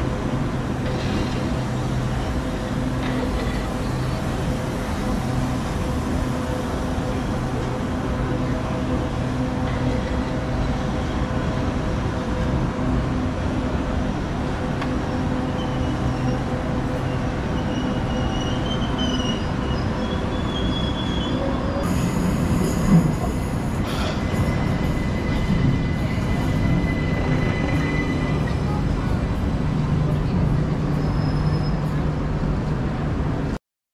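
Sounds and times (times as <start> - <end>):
train rumbling on rails: 0.0 - 33.6
wheel squeal: 17.2 - 21.8, 30.9 - 32.0
train bump: 21.9 - 29.3.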